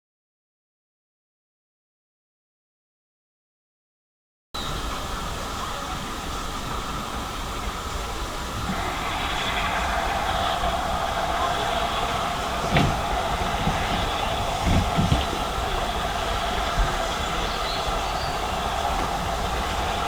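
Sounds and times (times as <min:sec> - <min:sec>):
steam locomotive rumble and hiss: 0:04.6 - 0:20.0
high squeal: 0:08.3 - 0:20.0.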